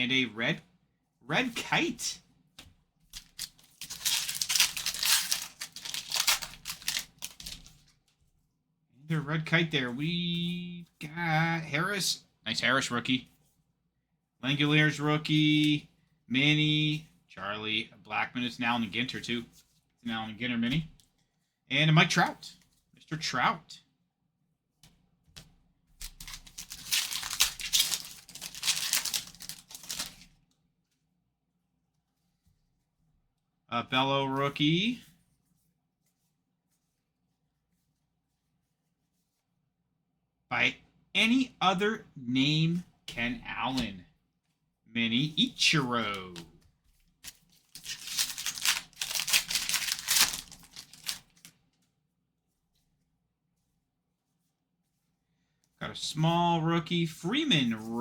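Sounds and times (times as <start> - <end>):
cards being handled: 2.6 - 8.3, 24.8 - 30.4, 45.2 - 51.9
foil wrapper tearing and crinkling: 3.2 - 7.8, 26.0 - 30.3, 47.2 - 51.5.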